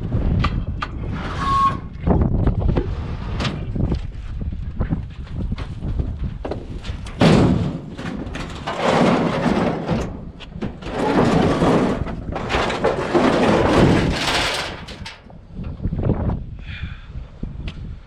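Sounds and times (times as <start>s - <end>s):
scrap metal thumping and clattering: 6.9s - 15.3s.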